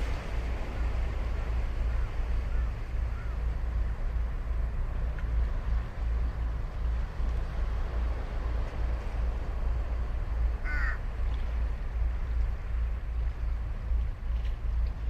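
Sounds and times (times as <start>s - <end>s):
surf rumble: 0.0s - 15.0s
wind on microphone: 0.0s - 15.0s
crow cawing: 10.6s - 11.0s.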